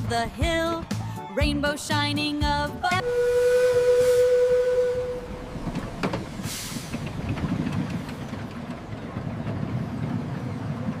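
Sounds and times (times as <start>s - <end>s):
steam train rumble: 3.0s - 11.0s
steam hiss: 3.1s - 5.0s, 6.0s - 7.3s.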